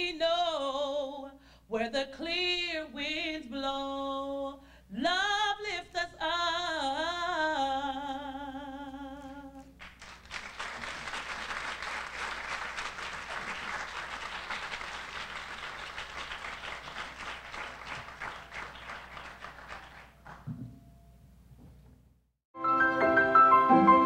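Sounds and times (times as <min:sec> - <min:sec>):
person singing with vibrato: 0:00.0 - 0:09.8
audience applauding: 0:09.8 - 0:20.5.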